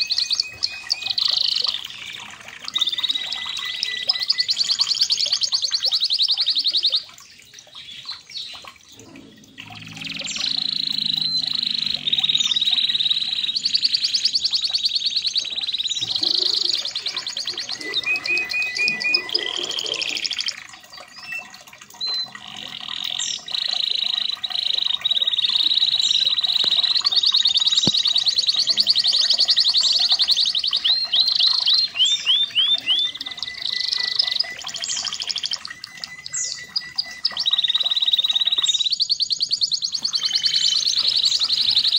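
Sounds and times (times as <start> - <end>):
canary singing trills: 0.0 - 41.9.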